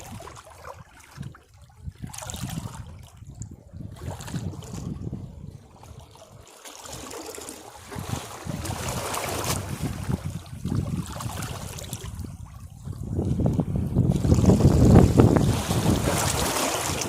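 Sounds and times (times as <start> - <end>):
wind rumble on microphone: 0.0 - 7.1, 7.7 - 17.0
sea waves washing against rocks: 3.9 - 17.0.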